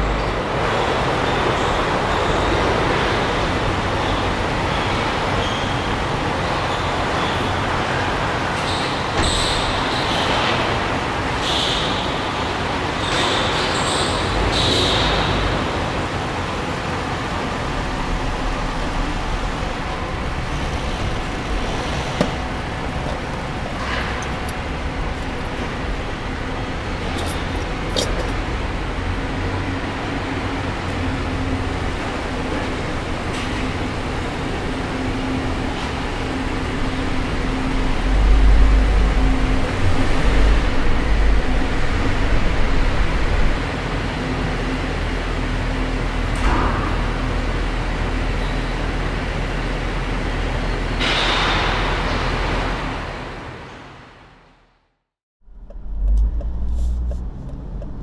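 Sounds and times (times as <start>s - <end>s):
vehicle engine droning: 0.0s - 53.3s, 55.4s - 58.0s
deep rumble: 55.4s - 58.0s.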